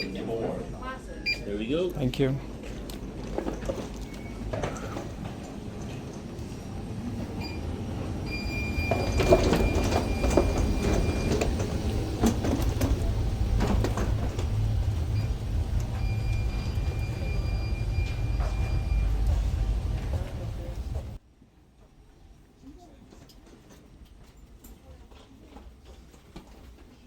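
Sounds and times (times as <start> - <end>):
low rumble: 11.8 - 21.2.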